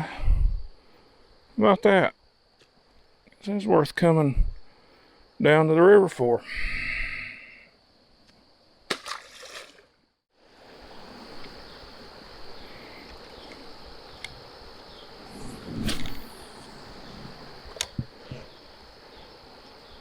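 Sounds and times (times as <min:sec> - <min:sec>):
brief noise burst: 0:15.3 - 0:18.1.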